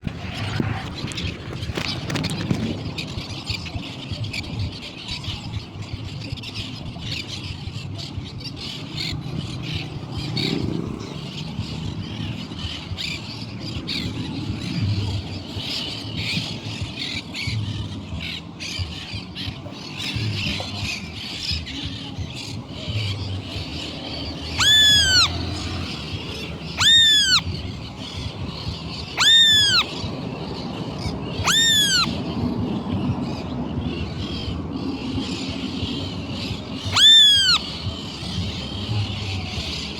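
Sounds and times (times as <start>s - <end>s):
birds chirping and chattering: 0.0s - 39.9s
loud arched bird calls: 18.6s - 32.4s, 34.2s - 39.9s.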